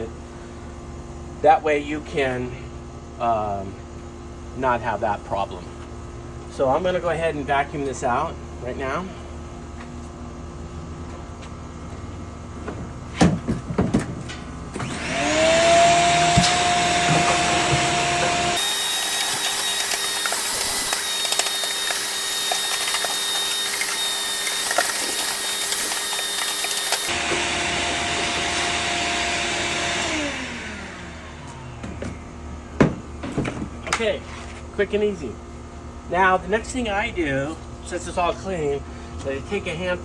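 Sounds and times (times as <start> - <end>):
vacuum cleaner motor whining: 14.8 - 32.2
debris clicking in vacuum: 18.6 - 27.1.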